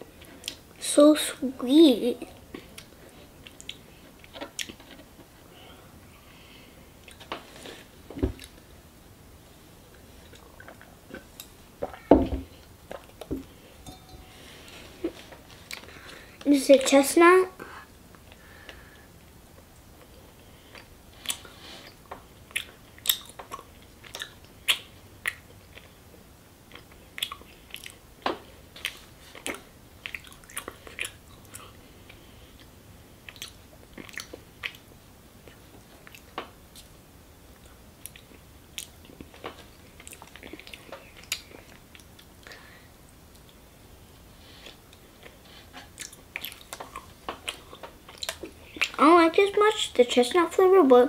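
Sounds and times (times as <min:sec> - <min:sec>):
person chewing with lip smacks: 0:20.7 - 0:26.0, 0:26.7 - 0:28.0, 0:28.8 - 0:34.8, 0:44.6 - 0:49.0.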